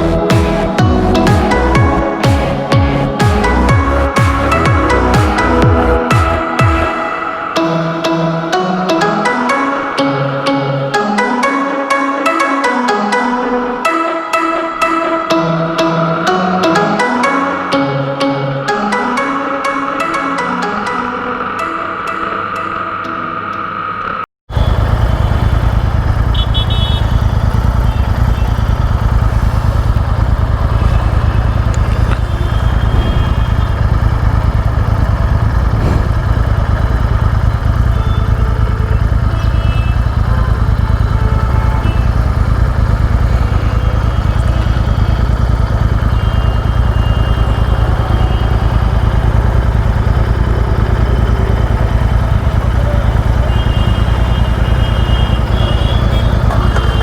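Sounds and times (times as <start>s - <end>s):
vehicle engine and road rumble: 0.0s - 6.9s, 24.5s - 57.0s.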